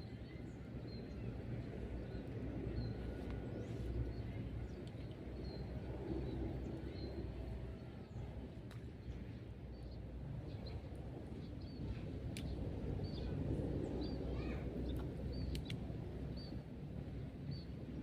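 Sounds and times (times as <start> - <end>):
steady low rumble: 0.0 - 18.0
faint clicks: 14.9 - 15.8.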